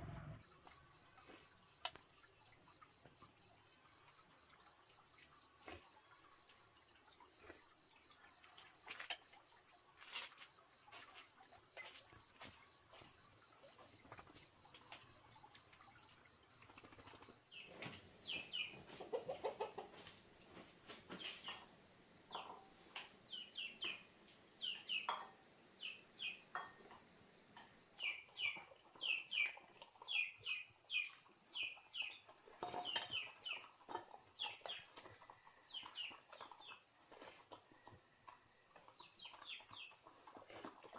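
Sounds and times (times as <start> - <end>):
chickens clucking: 16.6 - 21.7.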